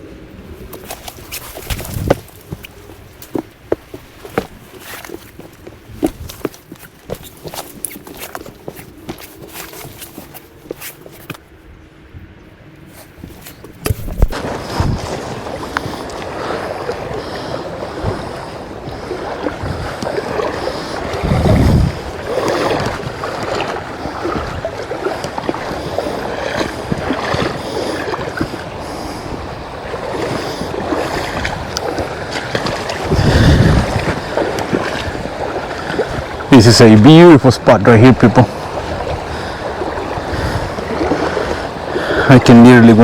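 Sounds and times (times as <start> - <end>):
creek water rushing: 0.0 - 11.4, 12.9 - 43.0
wind buffeting microphone: 0.0 - 12.4, 13.1 - 36.8, 38.1 - 43.0.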